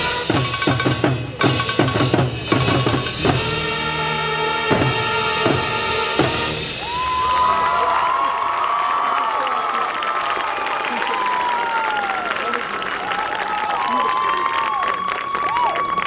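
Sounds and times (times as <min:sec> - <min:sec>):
brass chords: 0:00.0 - 0:06.8
crowd whistling and cheering: 0:06.7 - 0:16.0.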